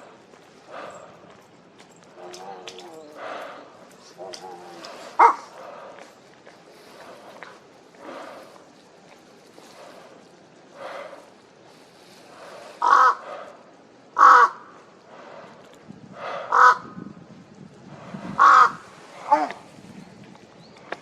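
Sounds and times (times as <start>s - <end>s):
crow cawing: 12.8s - 13.2s, 14.2s - 14.8s, 16.5s - 16.9s, 18.4s - 19.5s.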